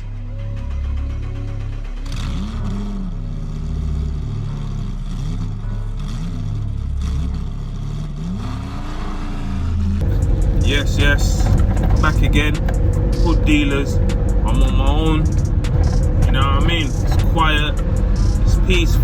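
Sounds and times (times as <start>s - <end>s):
car engine revving: 0.0s - 19.0s
steady low hum: 9.9s - 19.0s.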